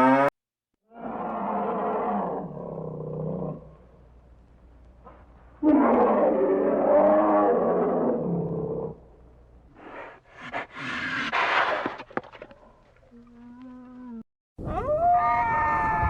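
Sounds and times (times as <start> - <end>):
big cat roaring: 0.9 - 3.7, 5.6 - 9.0.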